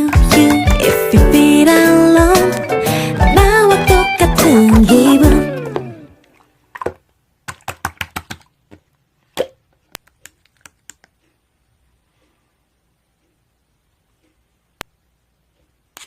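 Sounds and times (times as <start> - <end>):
background music: 0.0 - 6.2.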